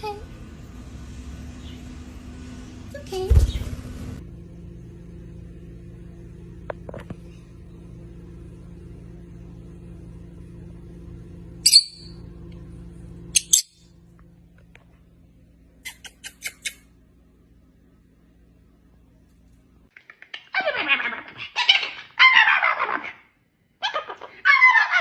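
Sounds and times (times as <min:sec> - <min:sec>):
steady low hum: 0:00.0 - 0:20.0
bird high-pitched chirps: 0:11.6 - 0:12.2, 0:13.4 - 0:13.8.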